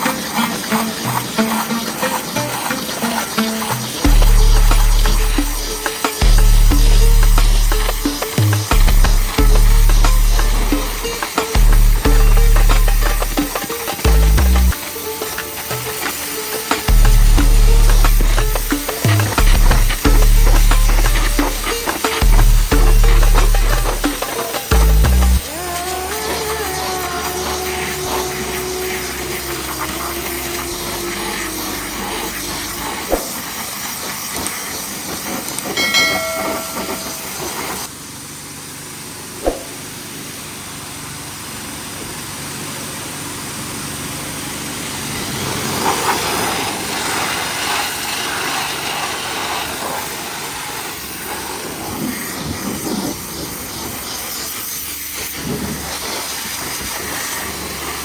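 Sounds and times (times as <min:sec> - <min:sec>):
pressure washer spraying water: 0:00.0 - 0:58.0
brief high tone: 0:35.8 - 0:37.7.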